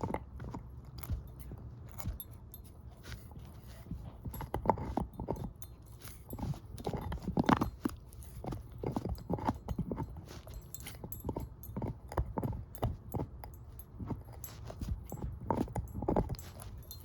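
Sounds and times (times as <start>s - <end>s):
dog chewing a bone: 0.0s - 17.0s.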